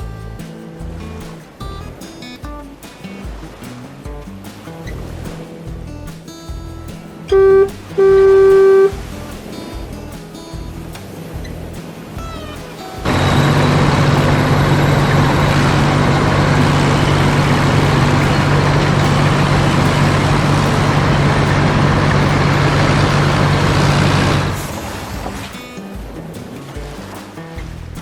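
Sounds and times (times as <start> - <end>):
heavy vehicle engine humming: 7.3 - 9.1, 13.0 - 25.5.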